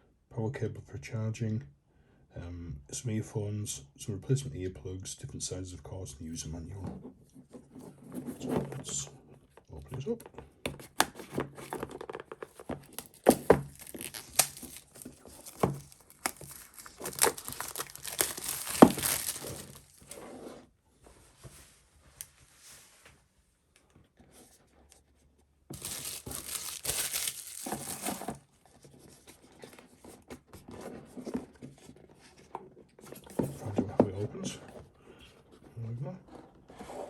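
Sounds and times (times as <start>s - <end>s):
packaging being torn and crinkled: 11.0s - 20.2s, 25.7s - 28.4s.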